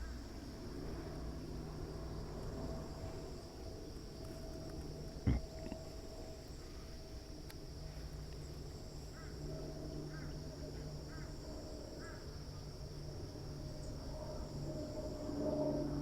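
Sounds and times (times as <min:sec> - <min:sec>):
high insect drone: 0:00.0 - 0:16.0
low outdoor rumble: 0:00.0 - 0:16.0.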